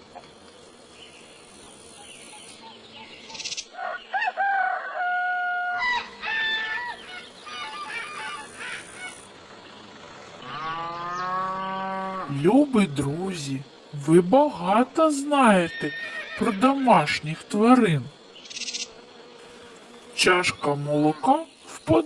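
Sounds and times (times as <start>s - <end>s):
rooster crowing: 3.8s - 7.1s.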